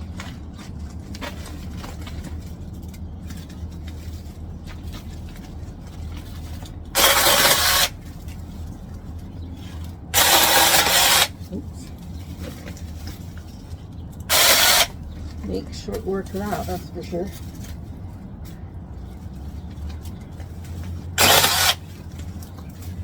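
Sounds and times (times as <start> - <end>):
small chainsaw cutting branches: 7.0 - 8.0, 10.2 - 11.4, 14.3 - 15.0, 21.2 - 21.9.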